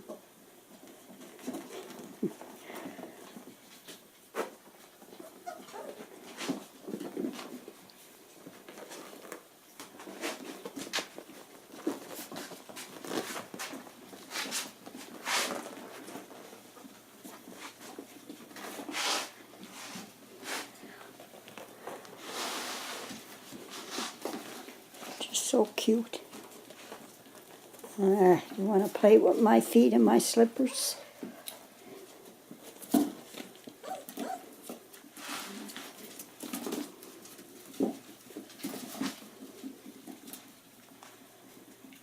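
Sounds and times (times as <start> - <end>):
paws scratching on floor: 0.7 - 42.0
puppy whimpers: 5.2 - 6.0, 33.8 - 34.6.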